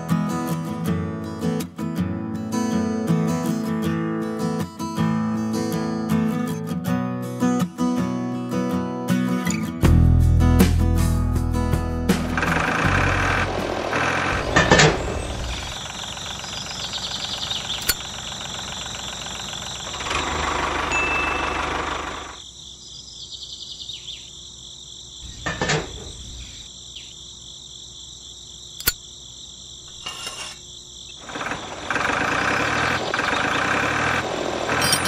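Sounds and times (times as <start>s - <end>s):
engine idling: 12.1s - 22.4s, 31.2s - 35.0s
small metal parts clicking: 34.7s - 35.0s.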